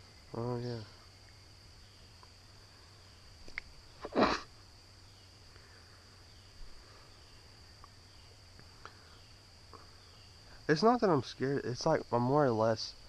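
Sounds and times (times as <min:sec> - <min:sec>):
crickets droning: 0:00.0 - 0:13.0
faint clicks: 0:03.4 - 0:03.7.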